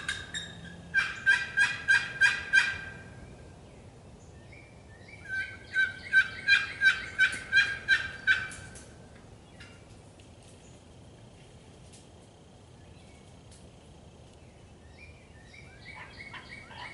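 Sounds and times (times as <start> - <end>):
turkey yelps: 0.0 - 3.0, 5.2 - 8.7, 15.8 - 16.9.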